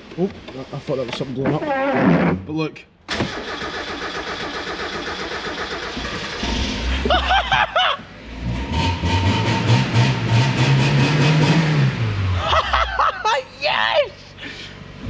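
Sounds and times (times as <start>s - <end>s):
engine cranking on starter motor: 3.1s - 7.2s
car engine revving: 4.1s - 12.8s
person crying out: 12.6s - 14.2s.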